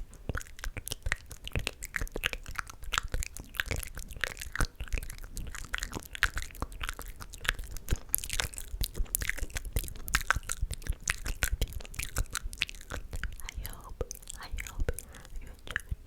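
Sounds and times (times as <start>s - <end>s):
wet mouth clicks and smacks: 0.0s - 16.0s
breathy hiss: 13.4s - 15.9s.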